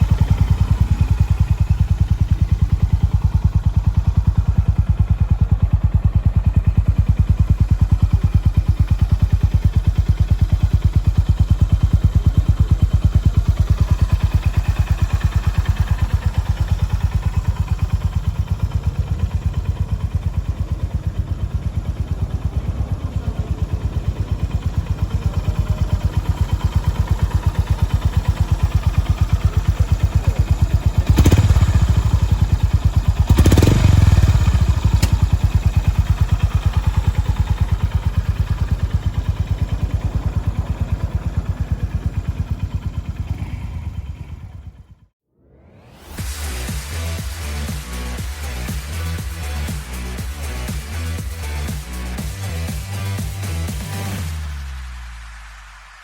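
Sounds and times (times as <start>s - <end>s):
motorcycle engine idling: 0.0s - 45.2s, 46.2s - 54.4s.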